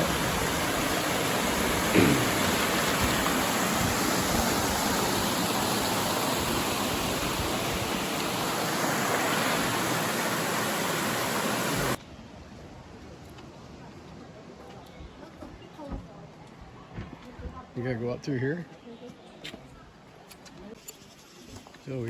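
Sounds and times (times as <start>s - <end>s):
flowing water rushing: 0.0s - 12.0s.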